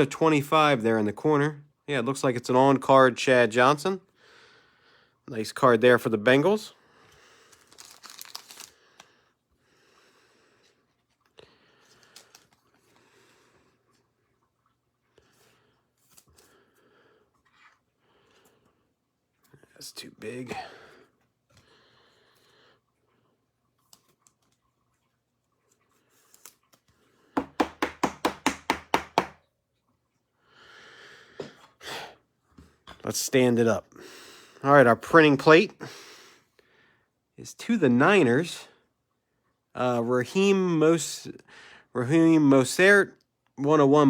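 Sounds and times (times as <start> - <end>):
trading card in plastic sleeve: 7.4 - 9.1, 11.8 - 13.0
knocks on hard surface: 27.4 - 29.4.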